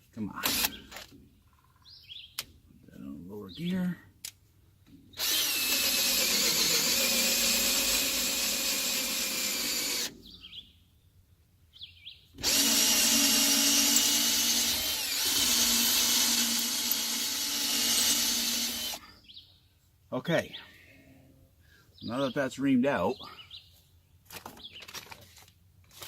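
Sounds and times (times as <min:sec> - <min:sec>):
electric drill running: 0:00.4 - 0:00.8, 0:05.2 - 0:10.1, 0:12.4 - 0:19.0.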